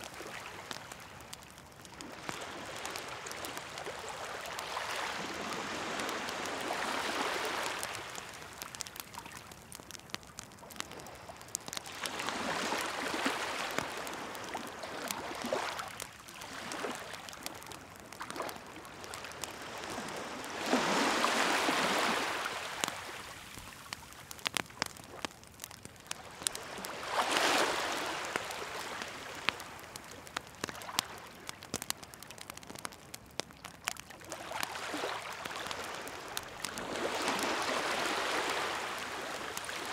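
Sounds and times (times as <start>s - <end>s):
bonfire crackling: 0.0s - 39.9s
waves washing ashore: 2.0s - 8.3s, 11.8s - 15.8s, 18.3s - 23.3s, 26.4s - 29.7s, 34.5s - 39.9s.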